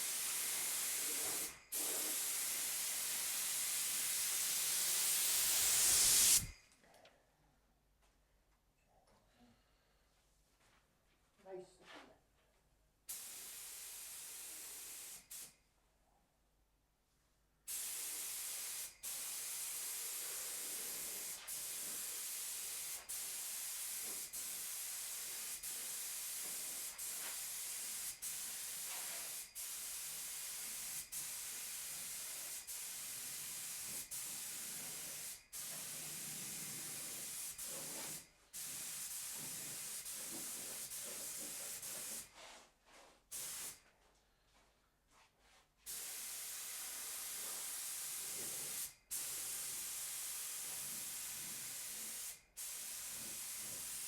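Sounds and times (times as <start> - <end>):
spray gun air hiss: 0.0 - 6.6, 13.1 - 15.6, 17.7 - 42.4, 43.3 - 43.8, 45.9 - 54.0.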